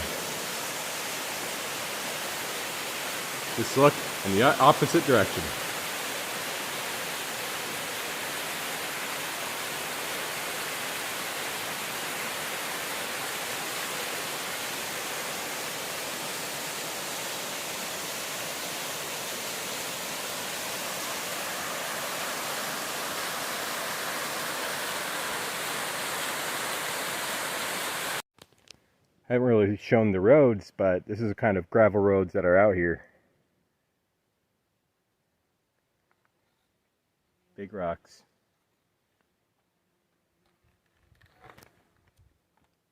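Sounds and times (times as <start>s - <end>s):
waterfall rushing: 0.0s - 28.2s.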